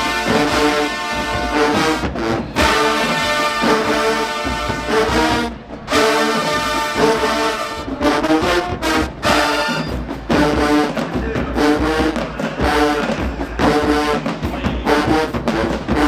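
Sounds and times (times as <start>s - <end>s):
marching band brass playing: 0.0s - 16.0s.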